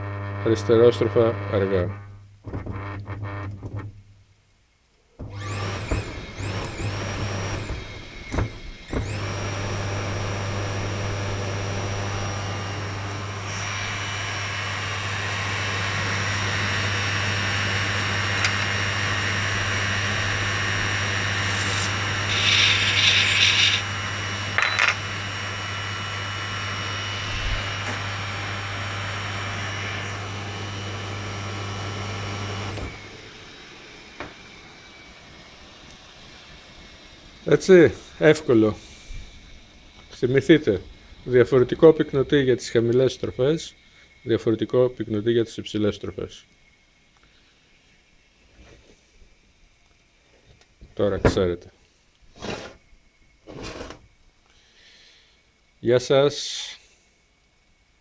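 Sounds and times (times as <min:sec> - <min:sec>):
washing machine motor humming: 0:05.2 - 0:42.3.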